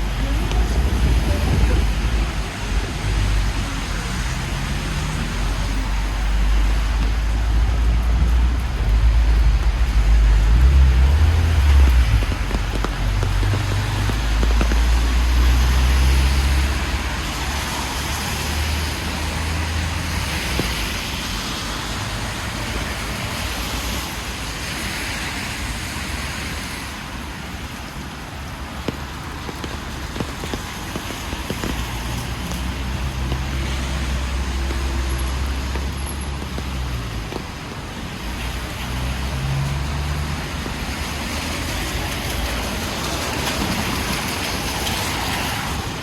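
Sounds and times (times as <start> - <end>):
heavy low rumble: 0.0 - 16.8
tyres hissing on wet road: 0.0 - 46.0.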